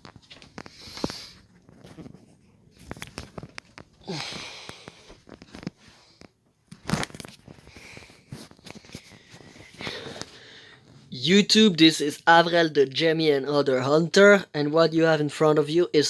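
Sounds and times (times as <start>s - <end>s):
rustling handling noises: 0.0s - 11.2s.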